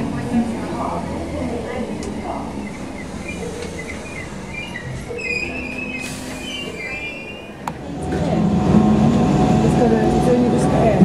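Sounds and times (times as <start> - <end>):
wavering tones: 0.0 - 10.9
electric train rolling: 0.0 - 11.0
wheel and brake squealing: 2.2 - 7.6.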